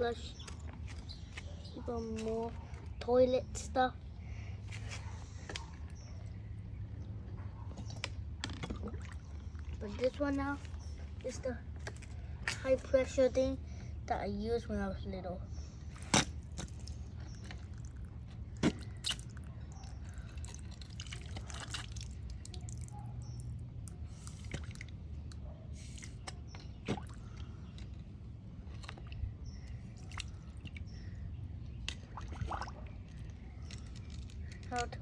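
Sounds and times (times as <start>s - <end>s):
water dripping and splashing: 7.8s - 12.6s, 16.2s - 25.2s, 26.2s - 27.9s, 28.8s - 31.0s, 31.8s - 35.0s.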